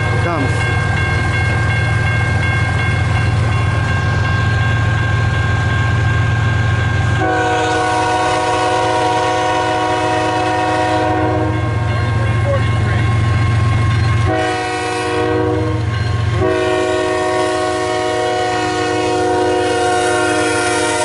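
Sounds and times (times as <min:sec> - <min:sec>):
diesel locomotive rumbling: 0:00.0 - 0:21.0
train horn chord: 0:07.1 - 0:11.9, 0:14.2 - 0:21.0.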